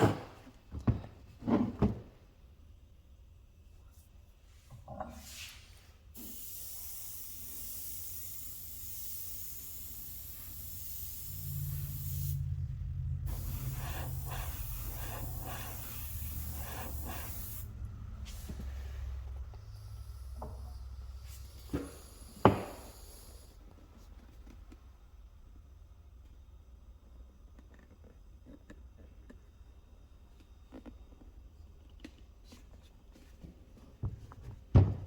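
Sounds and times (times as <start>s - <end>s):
airbrush spraying hiss: 6.2s - 12.6s, 13.2s - 18.7s, 19.6s - 23.6s
low hum: 11.2s - 21.2s.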